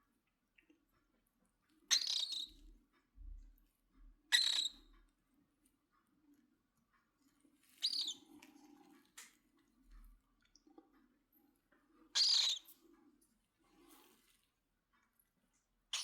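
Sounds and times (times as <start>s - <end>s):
cockatiel harsh high calls: 12.2s - 12.6s.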